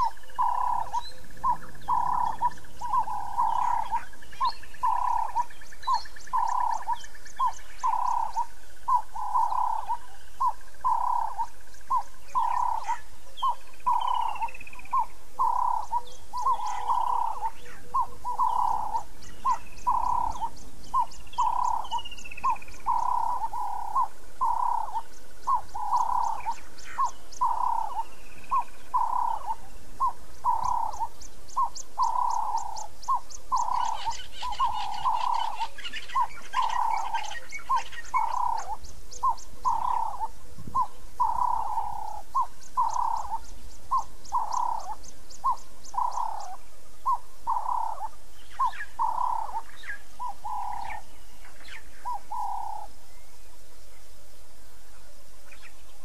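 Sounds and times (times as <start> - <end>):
bird calling: 0.0 - 54.0.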